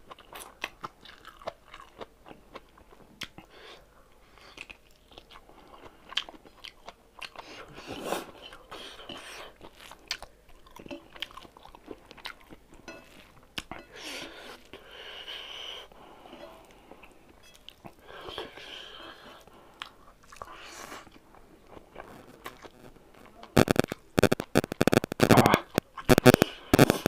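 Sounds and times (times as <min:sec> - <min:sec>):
person chewing: 0:00.1 - 0:03.5, 0:04.3 - 0:15.8, 0:16.6 - 0:27.0.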